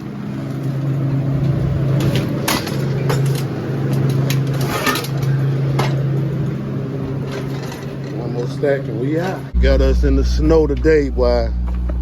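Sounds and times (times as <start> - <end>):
low mechanical hum: 0.0 - 12.0
clattering knocks and rattles: 1.4 - 6.6, 7.2 - 8.6.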